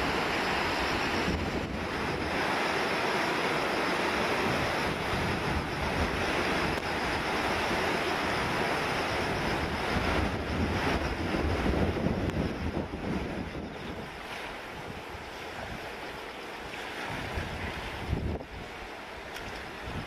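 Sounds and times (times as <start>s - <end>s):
wind buffeting microphone: 0.0s - 2.7s, 4.3s - 16.0s, 17.0s - 20.0s
river water rushing: 0.0s - 9.0s.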